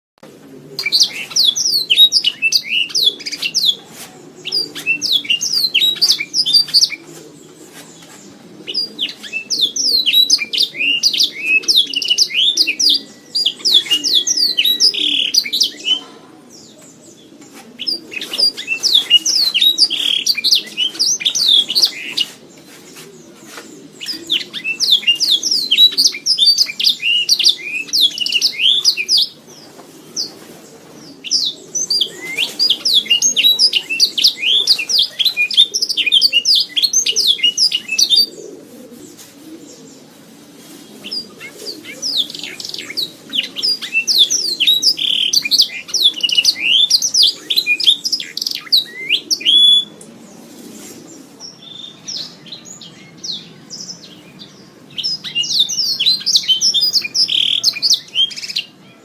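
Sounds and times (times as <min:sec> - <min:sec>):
canary singing: 0:00.2 - 0:40.1, 0:41.0 - 0:50.1, 0:51.5 - 0:59.0.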